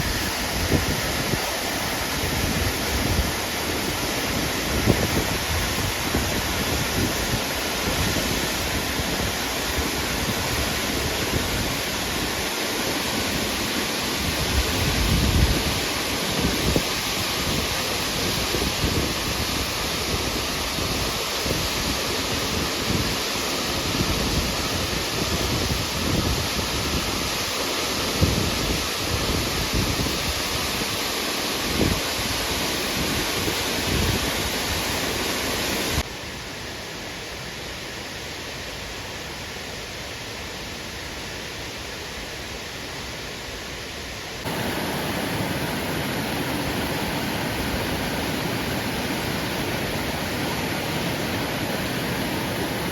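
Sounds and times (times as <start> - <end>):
wind buffeting microphone: 0.0 - 11.8, 14.2 - 23.2
waterfall rushing: 0.0 - 36.0, 44.3 - 52.9.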